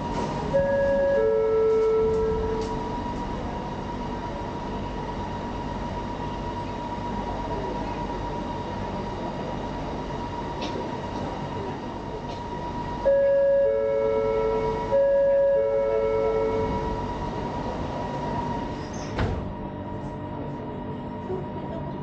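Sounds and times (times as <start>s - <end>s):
train rumble and hiss: 0.0s - 22.0s
loud steady tone: 0.3s - 3.1s, 12.8s - 17.6s.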